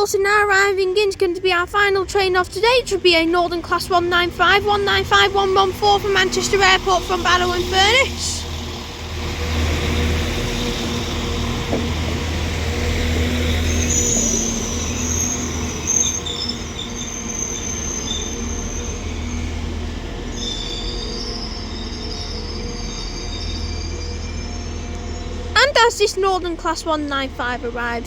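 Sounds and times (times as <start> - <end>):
diesel train engine rumble: 0.0 - 28.0
train brake squeal: 13.0 - 25.5.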